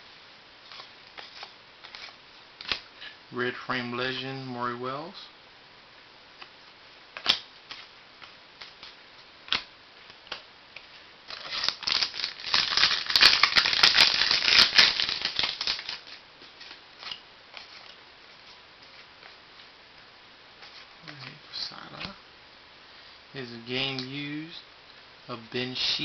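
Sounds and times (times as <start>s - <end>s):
packaging crinkling and rustling: 11.3s - 18.0s.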